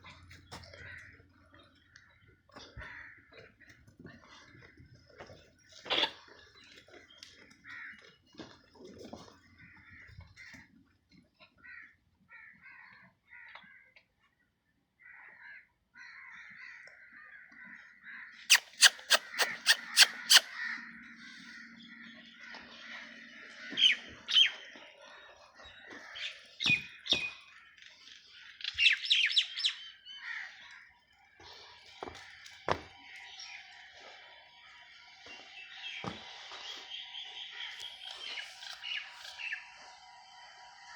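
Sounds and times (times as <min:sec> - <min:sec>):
birds calling and chirping: 0:18.3 - 0:30.8, 0:31.4 - 0:40.6.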